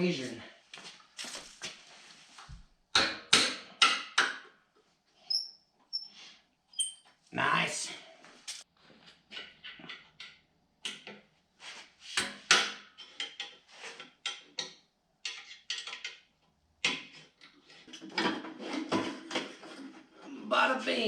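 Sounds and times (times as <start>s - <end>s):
scrapes rubs and knocks of metal parts: 11.6s - 14.6s, 17.0s - 20.3s.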